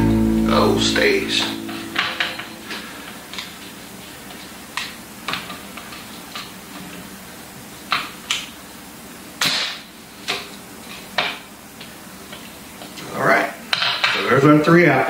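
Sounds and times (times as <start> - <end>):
utensils tapping on countertop: 1.4 - 3.6, 13.7 - 14.2.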